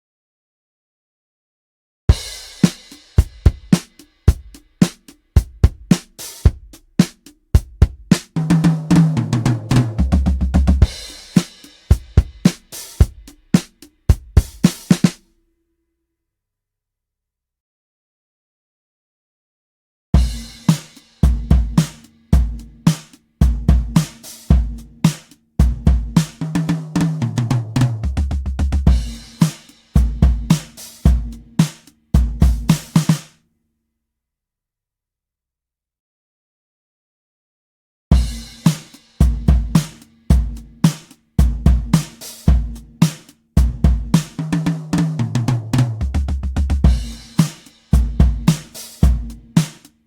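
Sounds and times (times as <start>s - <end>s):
kick and snare drum groove: 2.1s - 15.3s, 20.2s - 33.4s, 38.1s - 50.0s.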